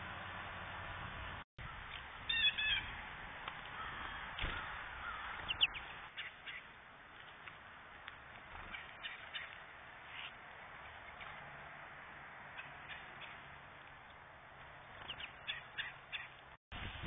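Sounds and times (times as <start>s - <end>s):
bird harsh calls: 1.7s - 3.0s, 3.7s - 6.7s, 8.6s - 10.4s, 12.5s - 13.5s, 15.0s - 16.4s
falling bird chirp: 3.8s - 6.7s, 15.0s - 16.4s.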